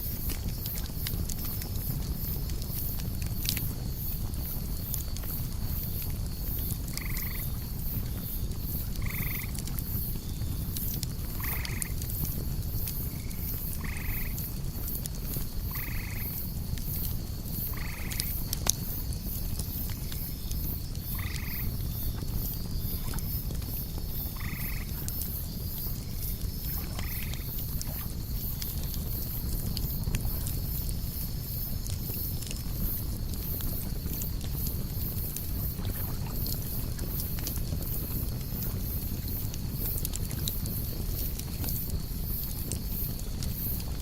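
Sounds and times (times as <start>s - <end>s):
campfire crackling: 0.0s - 44.0s
crickets chirping: 0.0s - 44.0s
fire pop: 0.0s - 44.0s.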